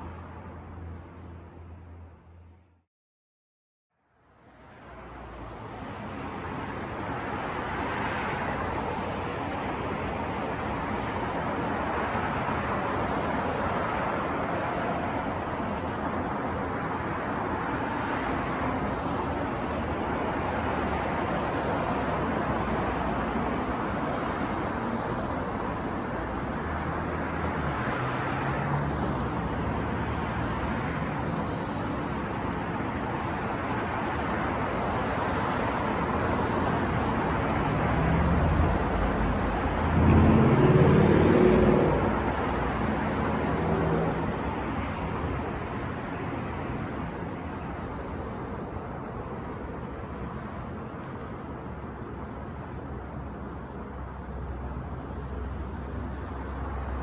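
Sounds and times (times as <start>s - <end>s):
passing cars: 4.3s - 57.0s
heavy vehicle engine rumbling: 37.5s - 45.8s.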